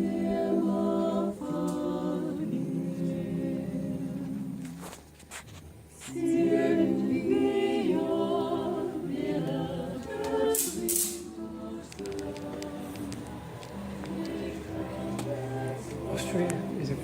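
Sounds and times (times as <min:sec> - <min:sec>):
voices singing in close harmony: 0:00.0 - 0:05.1, 0:06.0 - 0:17.0
clicks: 0:11.9 - 0:14.4.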